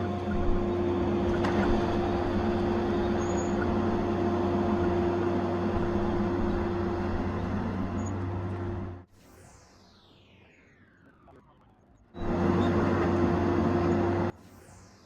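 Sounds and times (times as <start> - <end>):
diesel engine running steadily: 0.0 - 9.1, 12.2 - 14.4.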